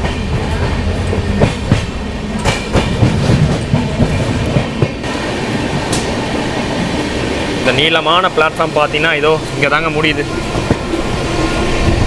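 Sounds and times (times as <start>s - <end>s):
wheels clicking over rail joints: 0.0s - 5.1s
train rumble: 0.0s - 12.0s.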